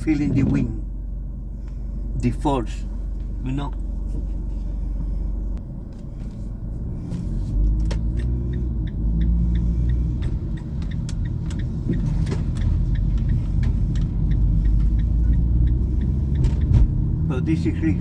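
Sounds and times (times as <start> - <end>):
car road and engine rumble: 0.0 - 18.0
light ticks: 7.6 - 16.7.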